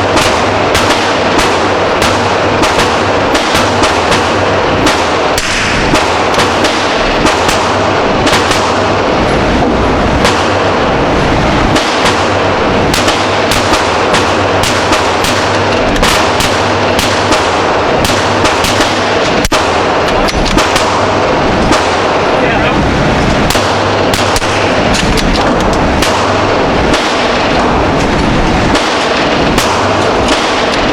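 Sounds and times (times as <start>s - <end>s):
dense background gunfire: 0.0s - 30.9s
gunshots at shooting range: 0.0s - 30.9s.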